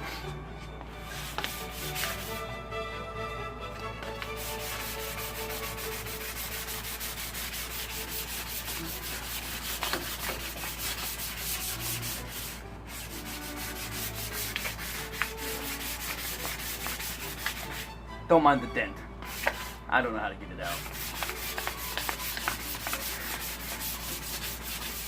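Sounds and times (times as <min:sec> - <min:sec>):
sandpaper rubbing metal: 0:01.0 - 0:02.4, 0:04.2 - 0:17.9, 0:19.3 - 0:19.8, 0:20.6 - 0:25.0.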